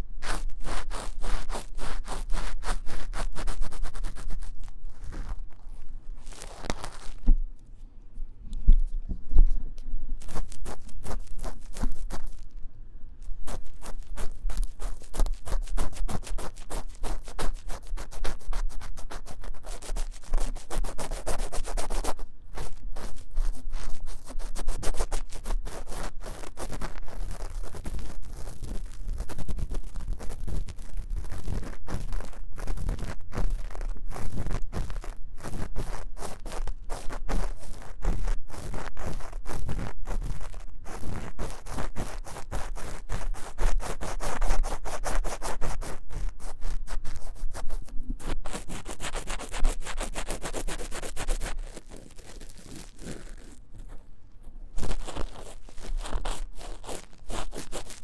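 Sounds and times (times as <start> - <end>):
scratching on microphone ear: 0.0 - 7.4, 10.2 - 12.6, 13.3 - 58.0.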